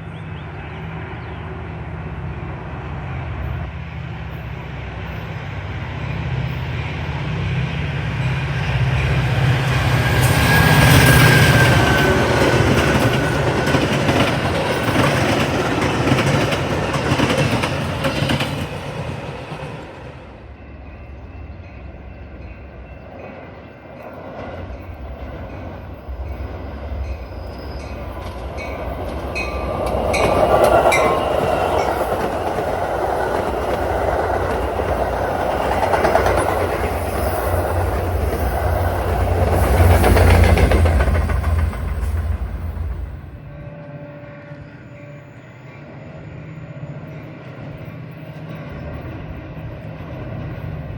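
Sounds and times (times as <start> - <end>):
high wheel squeal: 8.5 - 13.5, 26.1 - 33.2
train wheels clattering: 9.4 - 20.2, 23.3 - 43.2.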